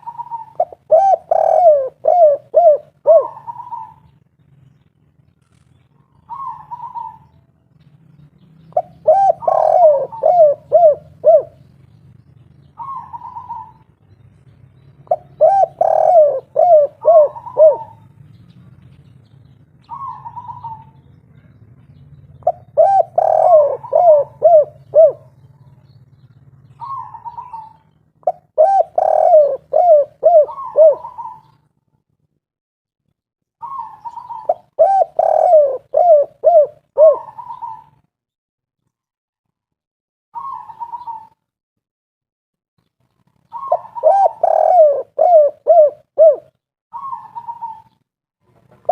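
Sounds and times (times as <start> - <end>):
dove cooing: 0.0 - 4.2, 6.1 - 7.4, 8.7 - 11.7, 12.7 - 13.9, 15.0 - 18.1, 19.8 - 21.5, 22.4 - 25.8, 26.7 - 31.6, 33.6 - 38.1, 40.4 - 41.4, 43.4 - 48.9.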